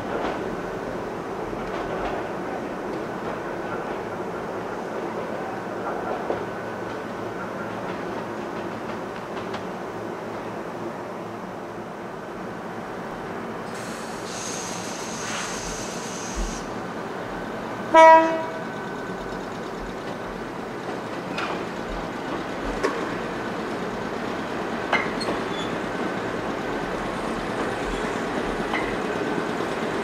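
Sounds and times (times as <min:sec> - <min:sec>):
electric train rolling: 0:12.8 - 0:30.0
high hiss: 0:13.7 - 0:16.8
train horn toot: 0:17.9 - 0:18.6.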